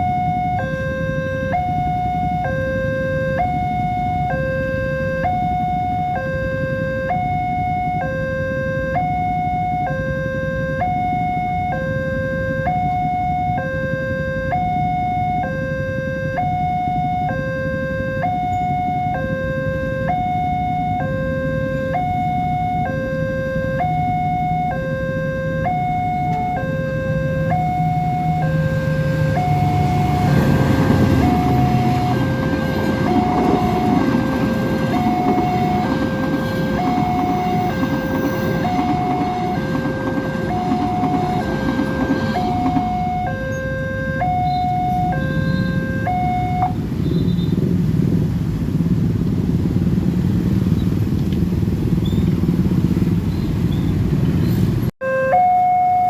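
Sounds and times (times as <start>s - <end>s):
level crossing alarm two tones: 0.0s - 46.8s, 55.0s - 56.0s
diesel train engine hum: 0.0s - 54.9s
train rushing past: 26.0s - 47.0s.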